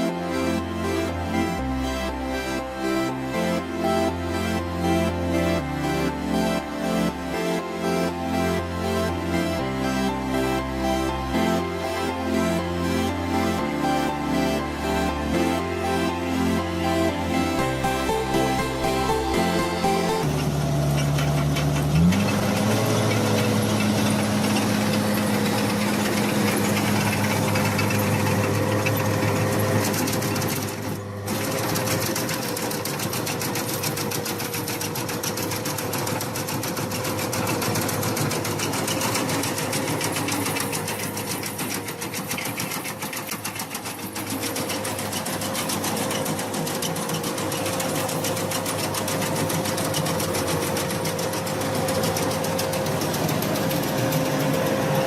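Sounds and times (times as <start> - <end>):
construction machine engine running: 0.0 - 55.0
mechanical clatter: 20.2 - 55.0.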